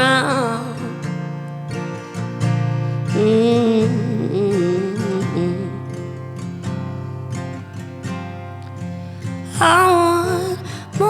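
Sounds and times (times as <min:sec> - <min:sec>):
woman singing with vibrato: 0:00.0 - 0:01.3, 0:03.0 - 0:06.2, 0:09.5 - 0:11.0
acoustic guitar strumming: 0:00.0 - 0:11.0.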